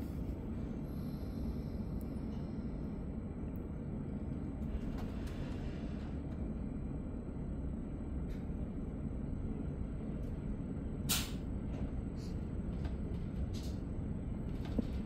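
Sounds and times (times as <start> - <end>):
train rumble inside coach: 0.0 - 15.0
faint clicks and rattles: 12.7 - 15.0.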